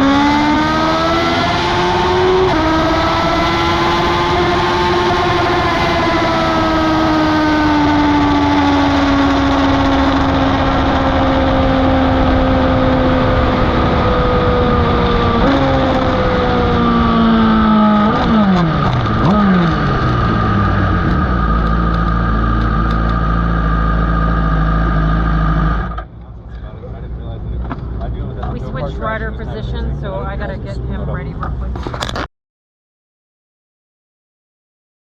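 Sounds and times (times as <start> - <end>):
wind noise: 0.0 - 23.3
motorcycle engine revving: 0.0 - 26.2.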